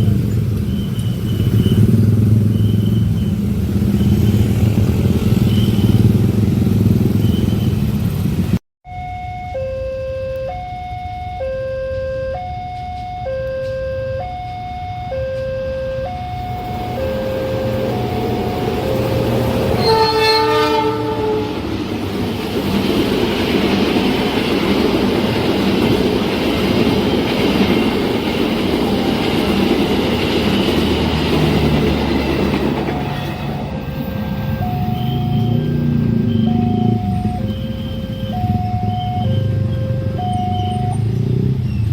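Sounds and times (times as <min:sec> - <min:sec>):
train passing: 0:00.0 - 0:08.6, 0:12.4 - 0:41.9
level-crossing warning alarm: 0:08.8 - 0:41.2
train horn blast: 0:15.1 - 0:21.8.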